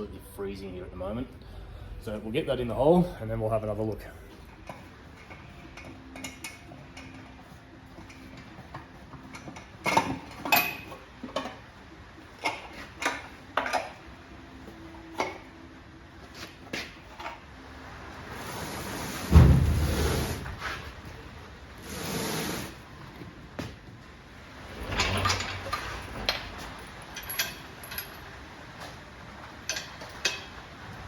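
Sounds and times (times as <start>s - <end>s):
hiss: 18.4s - 20.6s, 21.8s - 22.8s
metal tools clinking: 24.8s - 28.4s, 29.6s - 30.6s.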